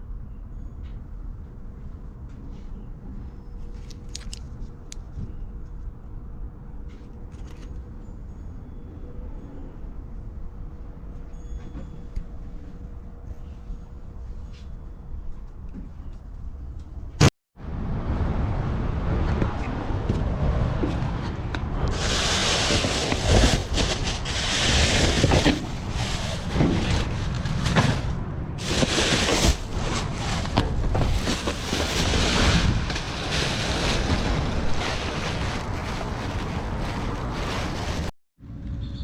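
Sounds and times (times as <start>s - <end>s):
rustling and knocking: 22.0s - 38.1s.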